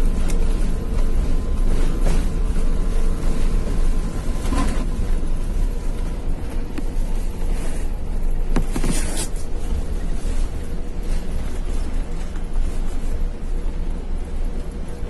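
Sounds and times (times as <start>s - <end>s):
low rumble of engines and runway: 0.0s - 15.0s.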